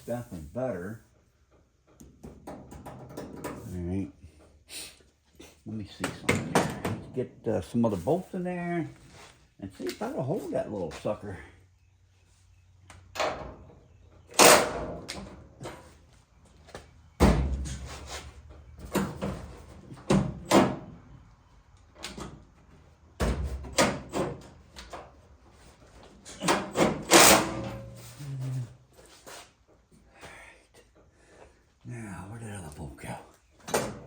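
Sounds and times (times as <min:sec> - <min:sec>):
metal clanks and knocks: 0:01.5 - 0:03.7, 0:06.0 - 0:07.2.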